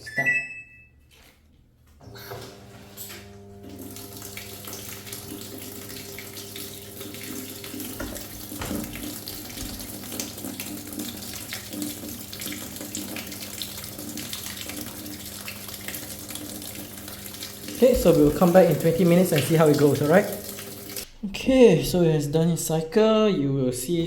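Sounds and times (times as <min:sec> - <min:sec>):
water rushing into washing machine: 0:02.1 - 0:21.1.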